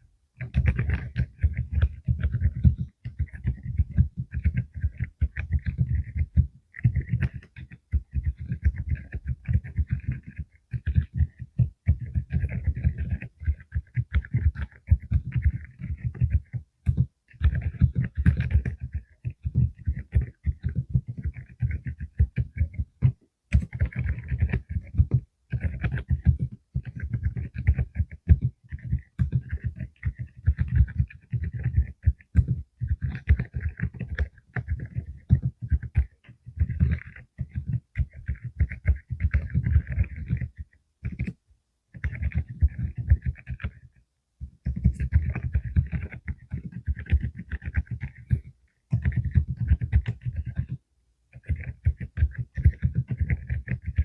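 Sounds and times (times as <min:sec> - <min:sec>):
mechanical keyboard typing: 0:00.4 - 0:54.0.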